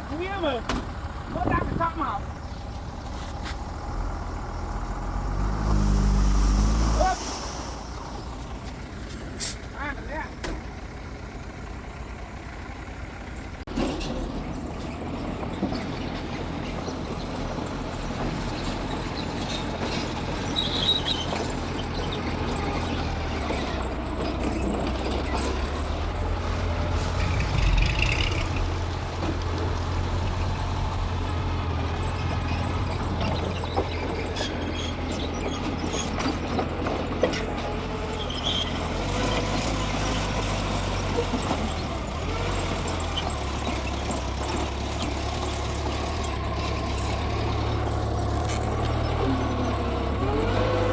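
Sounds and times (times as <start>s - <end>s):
bulldozer diesel engine running: 0.0s - 50.9s
short high squeaks: 18.6s - 22.8s, 32.1s - 36.7s, 37.3s - 39.8s.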